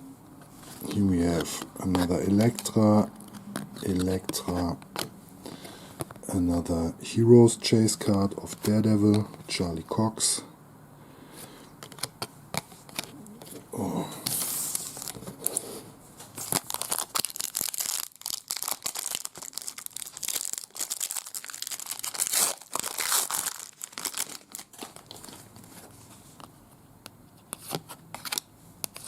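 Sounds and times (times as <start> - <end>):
wrapper tearing and crinkling: 16.4 - 25.4.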